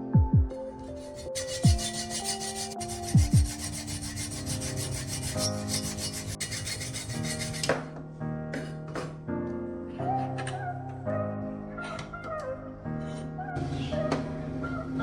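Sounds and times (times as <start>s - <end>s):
abrasive rubbing on metal: 0.7s - 7.7s.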